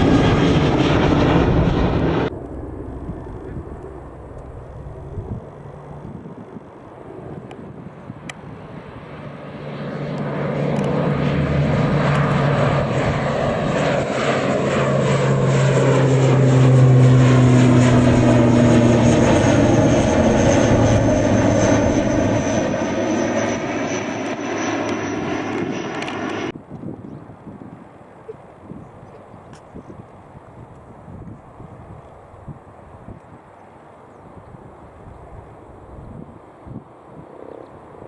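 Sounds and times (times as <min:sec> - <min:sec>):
airliner engines passing: 0:00.0 - 0:26.6.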